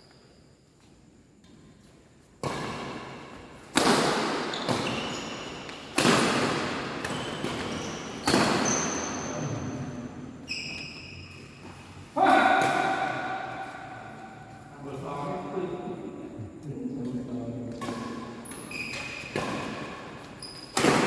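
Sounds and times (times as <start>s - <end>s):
racket striking shuttlecock: 3.7s - 8.8s, 12.3s - 14.3s, 20.7s - 21.0s.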